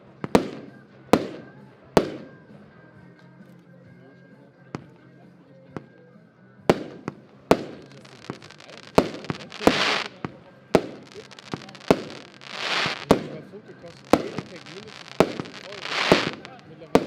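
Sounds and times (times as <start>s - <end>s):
firework bangs: 0.3s - 2.5s, 6.7s - 17.0s
firework hissing crackle: 6.9s - 17.0s.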